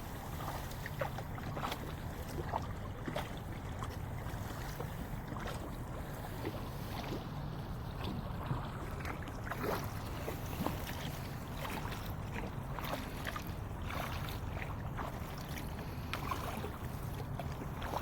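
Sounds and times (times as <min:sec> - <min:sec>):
water splashing against kayak: 0:00.0 - 0:18.0.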